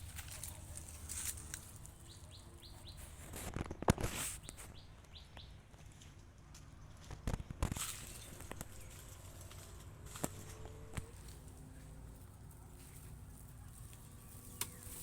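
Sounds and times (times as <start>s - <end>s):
small bird chirping: 1.4s - 3.8s, 12.8s - 15.0s.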